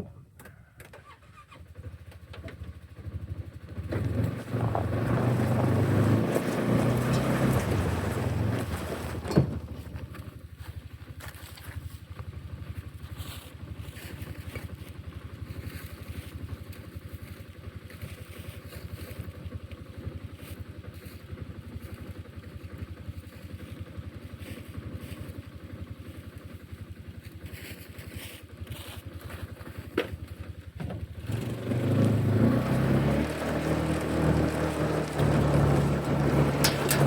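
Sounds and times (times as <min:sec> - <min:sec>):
vehicle engine running: 0:01.7 - 0:37.0.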